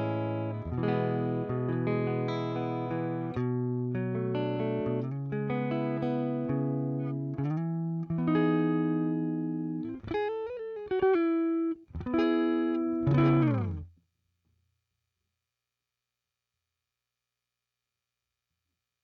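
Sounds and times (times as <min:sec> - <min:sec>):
electric guitar chords and notes: 0:00.0 - 0:13.9.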